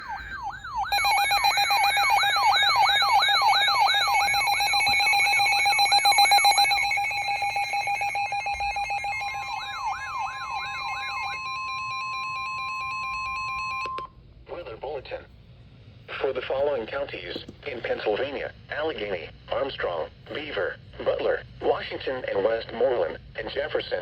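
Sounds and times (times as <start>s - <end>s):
beeping tones: 0.0s - 14.0s
falling siren sweeps: 0.0s - 14.0s
steady alarm tone: 0.0s - 14.0s.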